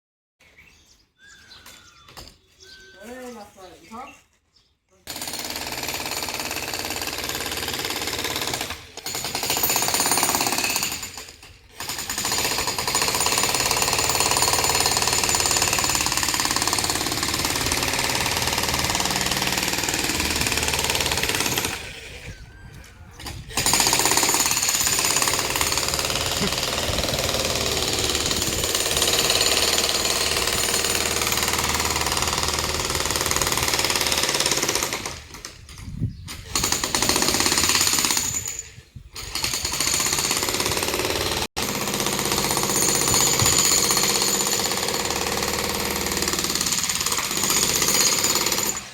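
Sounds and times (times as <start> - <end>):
breaker hammer pounding masonry: 5.1 - 21.9, 23.2 - 35.5, 39.3 - 48.9.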